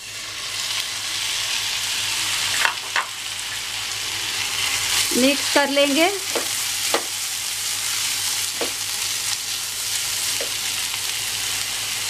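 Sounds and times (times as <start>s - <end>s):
vegetables sizzling in oil: 0.0s - 12.0s
spatula knocking pan: 6.3s - 7.2s, 8.5s - 8.8s.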